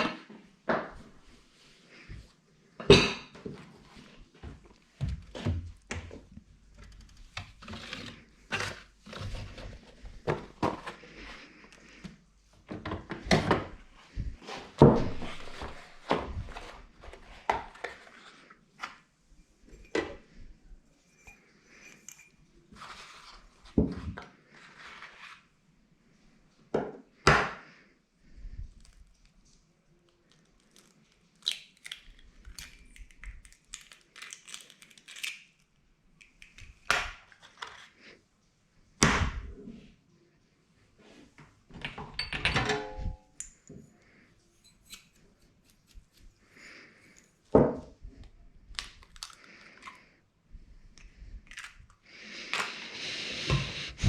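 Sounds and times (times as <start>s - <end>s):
cupboards and drawers worked: 3.1s - 11.4s, 52.7s - 54.0s
dishes and containers clattering: 41.8s - 43.4s.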